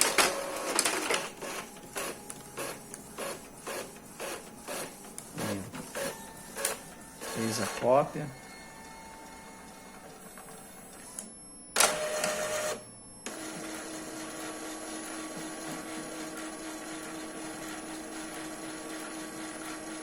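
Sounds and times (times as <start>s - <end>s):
printer motor hum: 0.0s - 20.0s
printer whirring burst: 0.0s - 20.0s
printer click: 11.2s - 13.6s.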